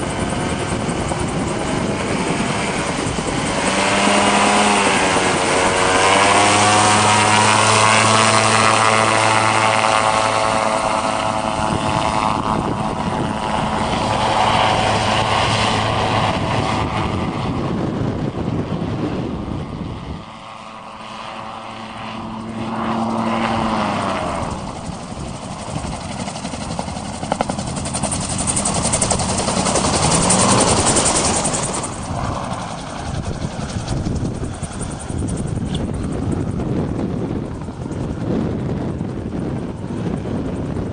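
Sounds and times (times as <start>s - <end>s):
gyrocopter engine and propeller: 0.0s - 40.9s.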